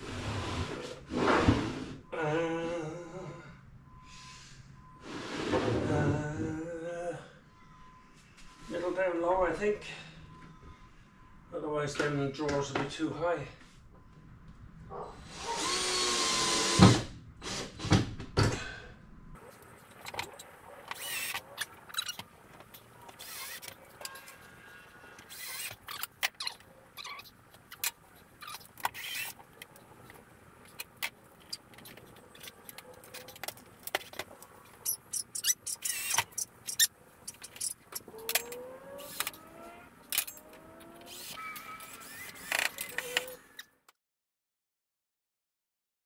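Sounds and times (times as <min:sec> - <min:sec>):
cordless drill driving screws: 0:15.3 - 0:17.6, 0:20.9 - 0:21.4, 0:23.2 - 0:23.7, 0:25.3 - 0:26.1, 0:35.2 - 0:39.4, 0:41.0 - 0:43.4.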